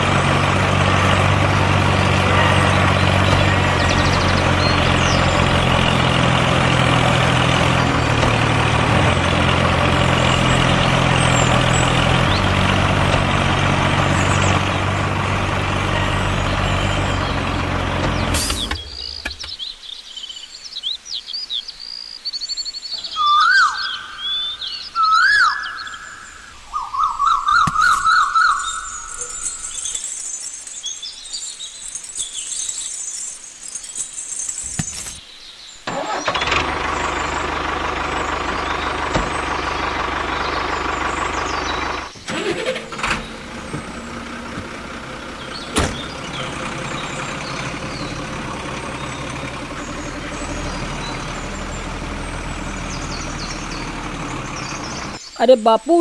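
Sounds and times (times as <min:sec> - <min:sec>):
heavy vehicle engine running: 0:00.0 - 0:19.7, 0:35.8 - 0:55.2
birds chirping: 0:00.0 - 0:56.0.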